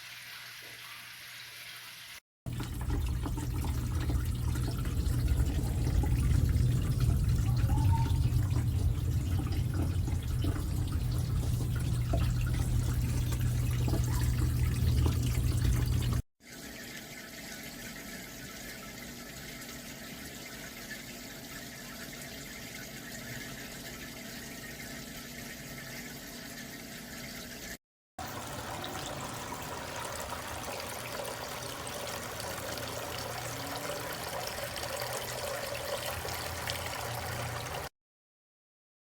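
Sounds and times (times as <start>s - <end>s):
fountain water trickling and splashing: 2.5s - 16.2s, 28.2s - 37.9s.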